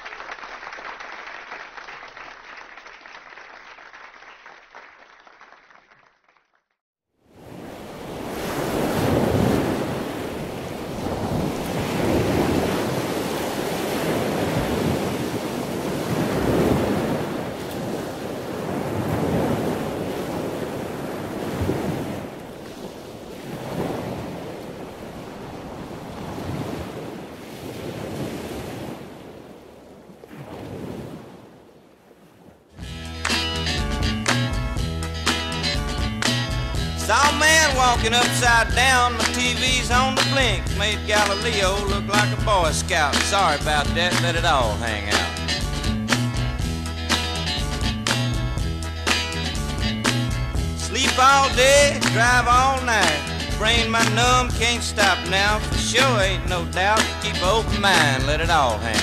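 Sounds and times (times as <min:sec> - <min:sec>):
wind buffeting microphone: 0:08.2 - 0:29.6.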